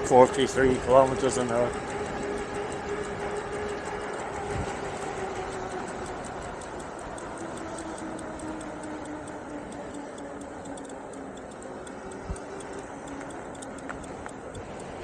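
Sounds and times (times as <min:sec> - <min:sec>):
wind noise: 0:00.0 - 0:08.8
fast even ticking: 0:00.0 - 0:15.0.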